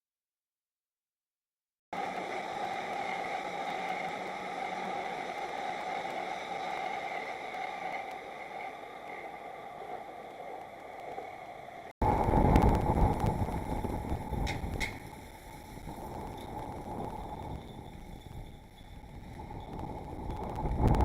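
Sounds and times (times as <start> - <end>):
outdoor background noise: 1.9 - 21.0
rushing noise: 2.0 - 21.0
deep rumble: 11.8 - 21.0.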